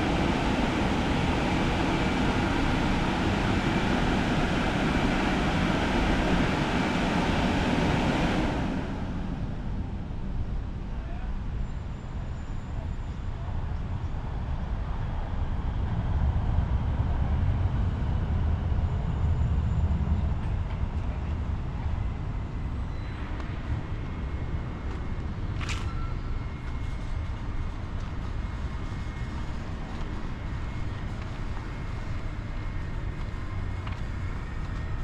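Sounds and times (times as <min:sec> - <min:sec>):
faint high whine: 0:00.0 - 0:14.3, 0:18.0 - 0:35.0
low mechanical rumble: 0:00.0 - 0:35.0
short sharp squeak: 0:25.6 - 0:26.4.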